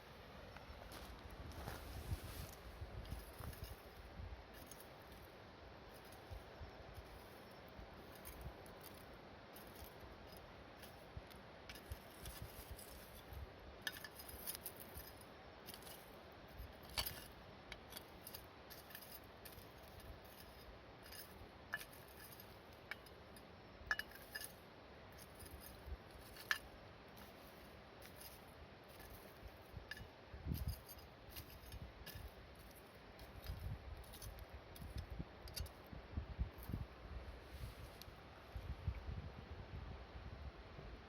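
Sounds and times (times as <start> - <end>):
embers crackling and ticking: 0.5 - 35.8.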